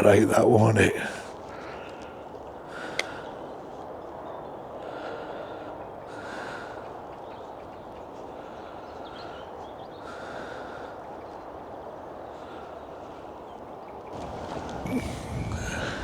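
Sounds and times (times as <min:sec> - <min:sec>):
man breathing slowly: 0:01.1 - 0:03.5, 0:04.7 - 0:07.1, 0:08.2 - 0:11.2, 0:12.2 - 0:13.4, 0:14.2 - 0:16.0.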